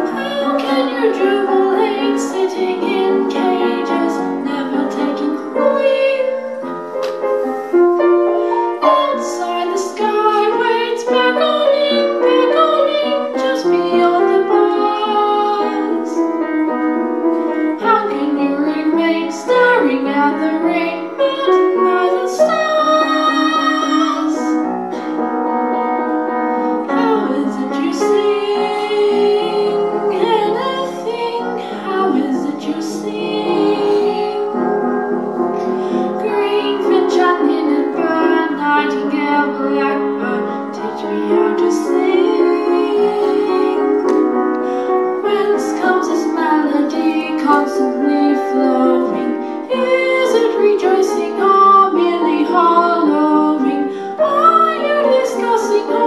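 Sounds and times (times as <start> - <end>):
woman singing: 0.0 - 6.7, 8.7 - 16.4, 17.6 - 24.7, 26.8 - 35.0, 35.9 - 44.4, 45.1 - 56.0
piano accompaniment: 0.0 - 56.0.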